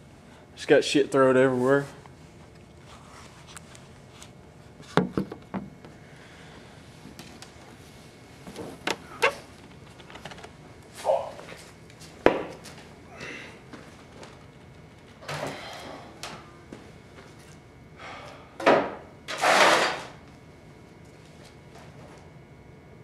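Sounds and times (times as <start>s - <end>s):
objects knocking and clunking: 4.9s - 5.7s.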